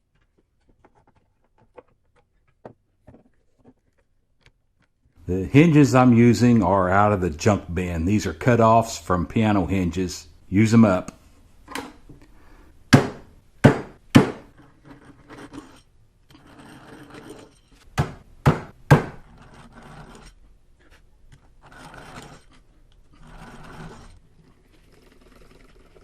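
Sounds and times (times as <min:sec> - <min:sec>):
wood scraping and rubbing: 0:00.0 - 0:04.9, 0:14.4 - 0:17.9, 0:19.0 - 0:26.0
sharp knocks on wood: 0:12.9 - 0:14.5, 0:18.0 - 0:19.2.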